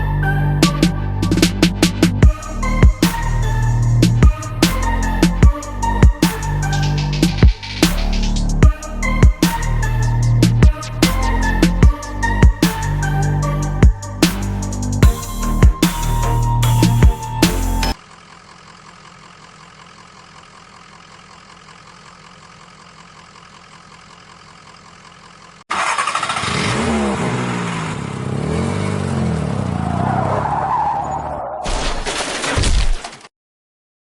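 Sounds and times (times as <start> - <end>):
engine revving: 0.0 - 18.0, 25.7 - 30.5
quiet engine hum: 17.9 - 25.6.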